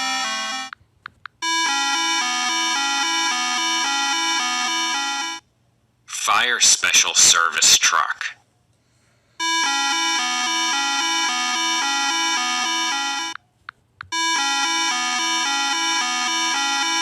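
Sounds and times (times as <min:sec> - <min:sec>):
two-pitch electronic warning siren: 0:00.0 - 0:00.7, 0:01.4 - 0:05.4, 0:09.4 - 0:13.4, 0:14.1 - 0:17.0.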